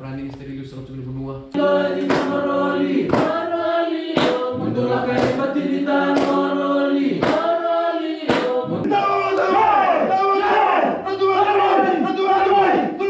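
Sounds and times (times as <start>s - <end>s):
choir singing in harmony: 1.5s - 10.0s
sharp percussive strikes: 2.0s - 2.4s, 3.1s - 3.4s, 4.1s - 4.5s, 5.1s - 5.4s, 6.1s - 6.5s, 7.2s - 7.6s, 8.3s - 8.6s.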